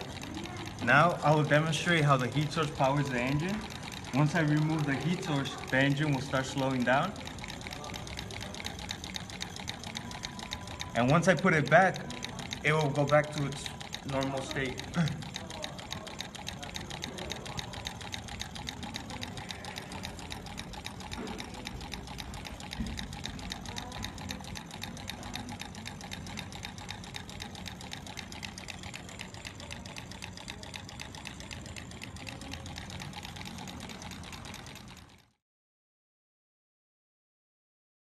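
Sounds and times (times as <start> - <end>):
engine mechanical clatter: 0.0 - 35.4.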